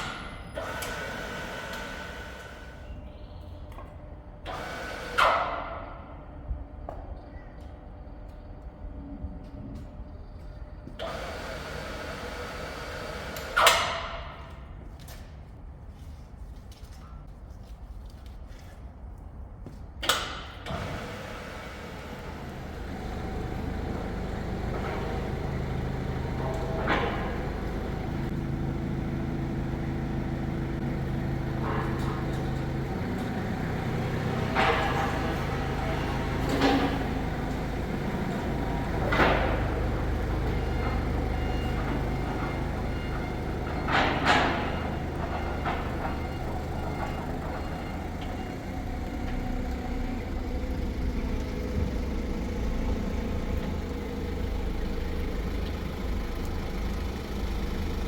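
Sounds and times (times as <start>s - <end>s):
machine humming: 20.7s - 58.0s.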